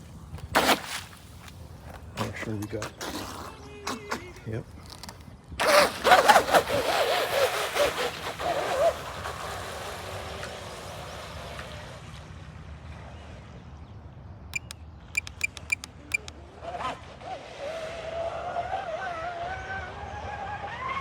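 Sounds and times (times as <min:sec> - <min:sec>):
high beep: 0:14.6 - 0:16.3
sharp clicks: 0:14.6 - 0:16.3.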